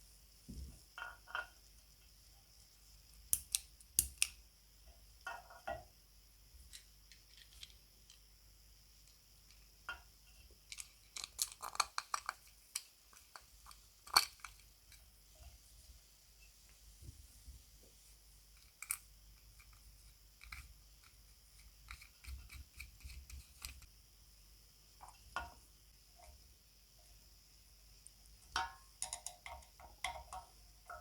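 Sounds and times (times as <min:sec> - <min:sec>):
small parts clicking: 0:06.6 - 0:08.2, 0:10.6 - 0:15.1, 0:18.6 - 0:23.9.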